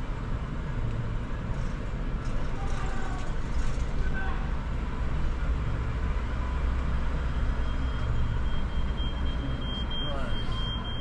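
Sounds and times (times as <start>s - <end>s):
faint high beeping: 7.3s - 11.0s.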